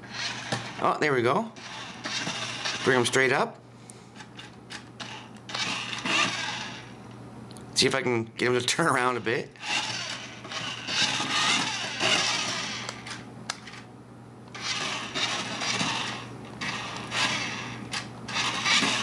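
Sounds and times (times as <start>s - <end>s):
toy car motor whirring: 0.0s - 0.8s, 1.6s - 3.0s, 4.3s - 6.9s, 9.6s - 13.8s, 14.5s - 19.0s.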